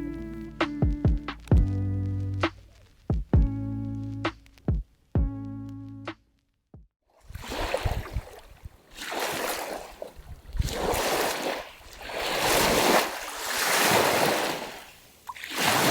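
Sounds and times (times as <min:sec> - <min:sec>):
strong wind on microphone: 0:07.3 - 0:08.7.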